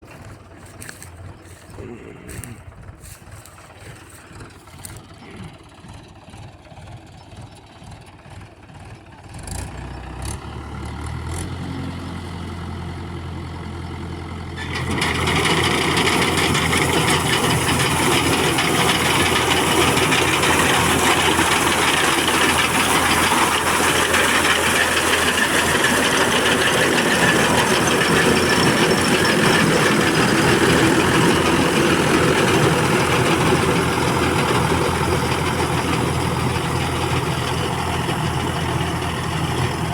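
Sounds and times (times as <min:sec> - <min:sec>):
tractor engine running: 0:00.0 - 0:39.9
threshing machine clatter: 0:14.6 - 0:39.9.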